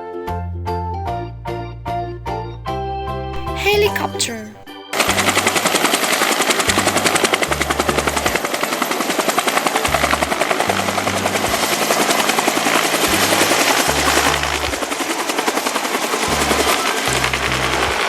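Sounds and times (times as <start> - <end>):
helicopter rotor chop: 14.4 - 16.2.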